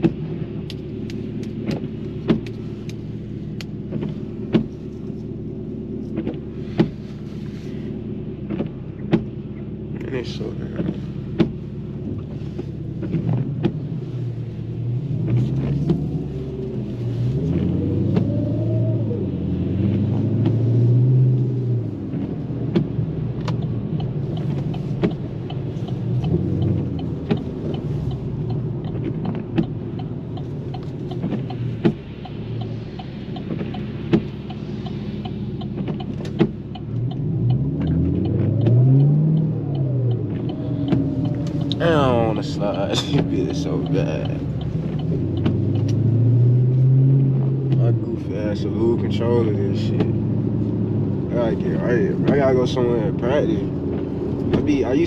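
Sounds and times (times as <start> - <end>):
car engine accelerating: 0.0 - 55.0
sharp ticks: 22.8 - 46.1.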